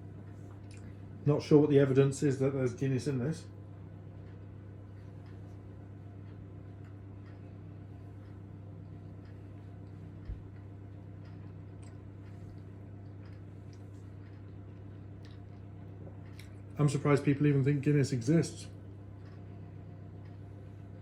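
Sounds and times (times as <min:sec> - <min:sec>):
low electrical hum: 0:00.0 - 0:21.0
person chewing: 0:11.3 - 0:16.6.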